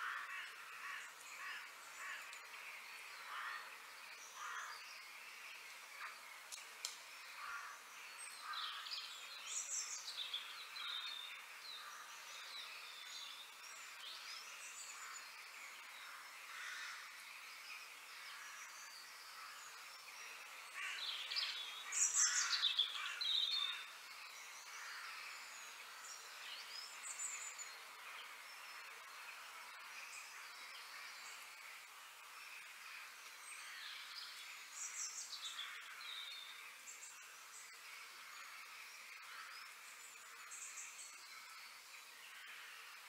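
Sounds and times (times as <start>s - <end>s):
birds chirping and calling: 20.7s - 26.0s.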